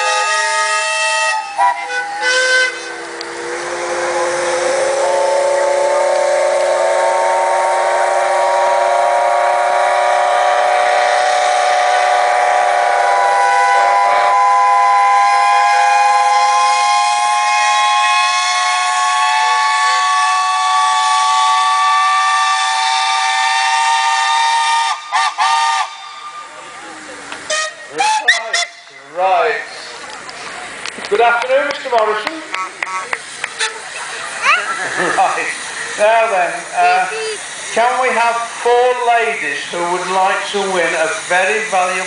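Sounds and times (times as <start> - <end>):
steam whistles chord: 0.0 - 26.7.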